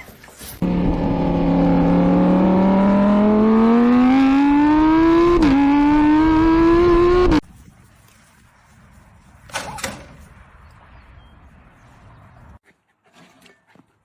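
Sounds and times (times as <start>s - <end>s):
car engine accelerating hard: 0.6s - 7.4s.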